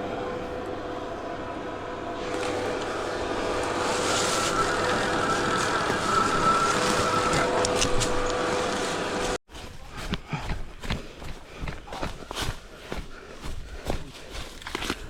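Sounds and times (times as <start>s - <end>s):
electric motorbike motor whine: 0.0s - 9.4s
tyres on a trail: 0.0s - 15.0s.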